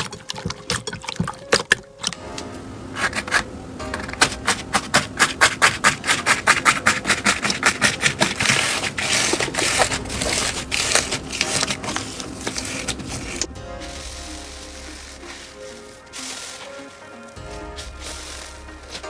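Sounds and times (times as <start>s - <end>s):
crunchy slime crackling: 4.2s - 19.0s.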